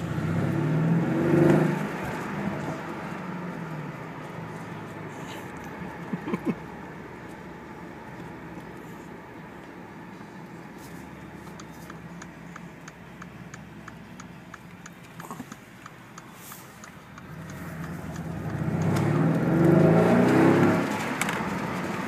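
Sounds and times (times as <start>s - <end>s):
car engine revving: 0.0s - 5.2s, 10.9s - 22.0s
light ticking: 11.5s - 19.5s.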